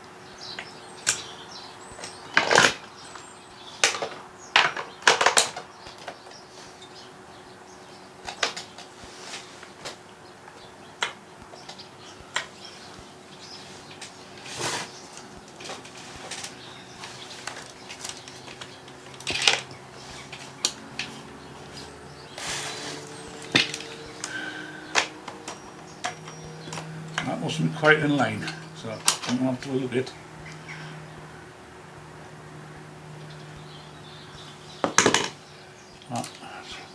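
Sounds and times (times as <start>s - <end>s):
metal parts clicking and clinking: 15.1s - 21.8s.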